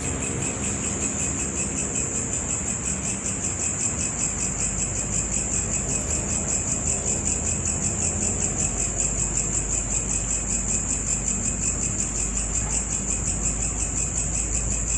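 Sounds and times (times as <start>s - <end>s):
high-pitched insect trilling: 0.0s - 14.9s.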